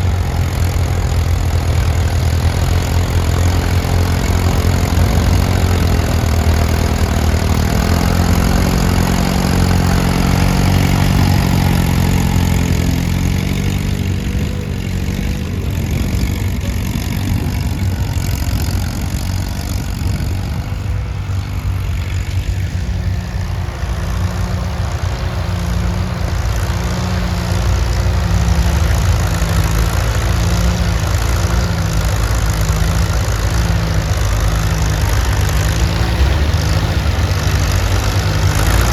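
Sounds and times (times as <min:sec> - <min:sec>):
old tractor engine running: 0:00.0 - 0:38.9.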